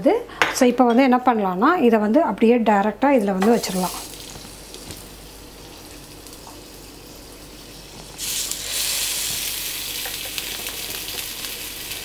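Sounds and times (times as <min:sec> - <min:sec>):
food sizzling on a grill pan: 0:03.6 - 0:12.0.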